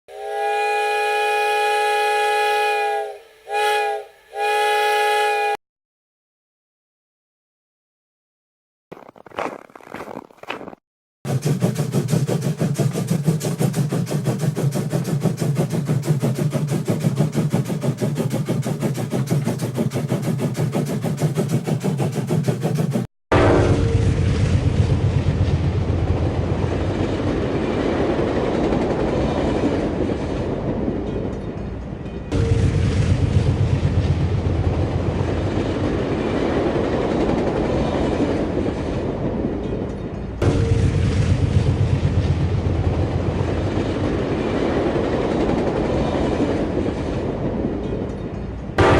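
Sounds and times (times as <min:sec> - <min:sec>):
engine running with pulsing beat: 0:11.3 - 0:26.3
train wheels rumbling on rails: 0:11.3 - 0:48.9.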